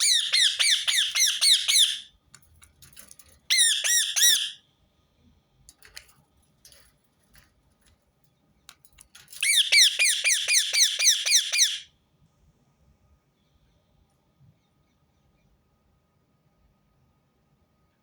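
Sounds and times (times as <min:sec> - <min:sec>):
parakeet screeching: 0:00.0 - 0:02.1, 0:03.5 - 0:04.6, 0:09.4 - 0:11.9.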